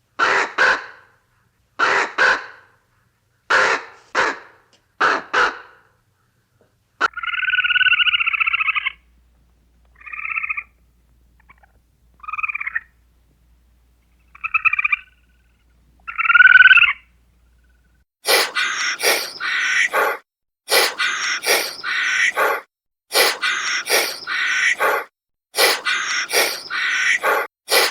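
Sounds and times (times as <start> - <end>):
animal calls: 14.1 - 27.9.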